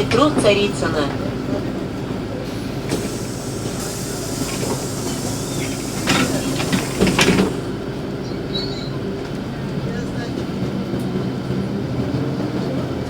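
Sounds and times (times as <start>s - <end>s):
bus engine hum: 0.0s - 13.0s
road noise: 0.0s - 13.0s
rattling or hissing noises: 2.5s - 7.8s.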